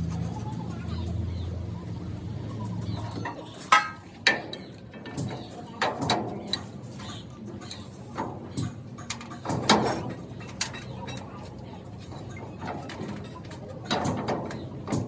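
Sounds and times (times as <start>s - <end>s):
low engine hum: 0.0s - 5.8s.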